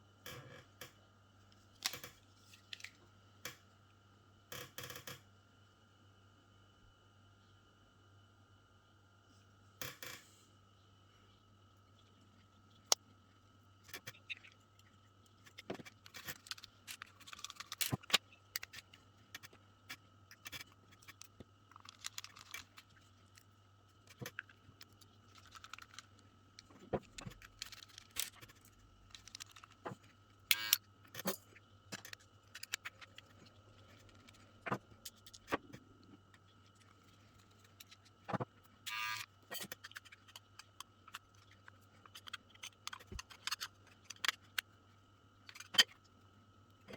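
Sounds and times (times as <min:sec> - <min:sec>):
faint steady hum: 0:00.0 - 0:46.9
clipper parts clicking and rattling: 0:15.4 - 0:23.5, 0:27.0 - 0:34.4.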